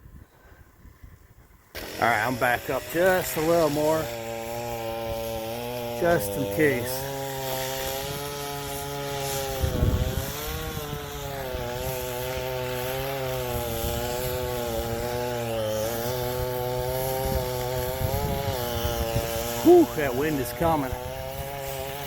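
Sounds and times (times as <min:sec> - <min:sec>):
wind rumbling on microphone: 0:00.0 - 0:01.7, 0:09.5 - 0:11.3, 0:17.2 - 0:19.4
chainsaw cutting wood: 0:00.6 - 0:22.0.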